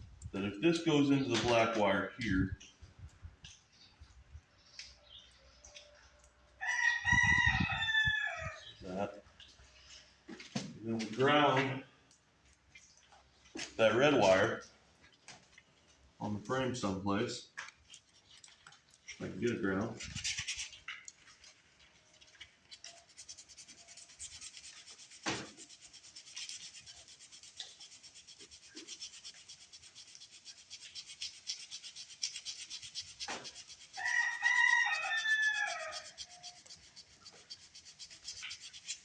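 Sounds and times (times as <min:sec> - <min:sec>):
metal scraping painted steel: 0:17.9 - 0:39.0.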